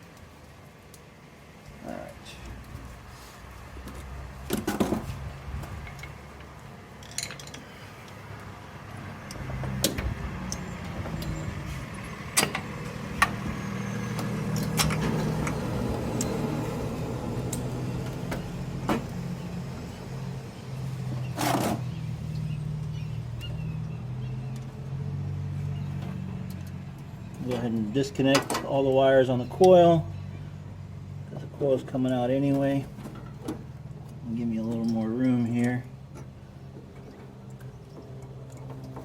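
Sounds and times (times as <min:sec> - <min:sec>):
clicks and knocks of tools: 0:05.6 - 0:08.5, 0:14.2 - 0:15.6.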